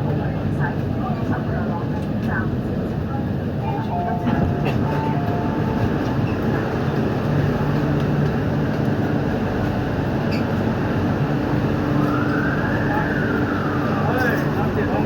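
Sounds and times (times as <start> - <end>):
metro car equipment humming: 3.5 - 15.0.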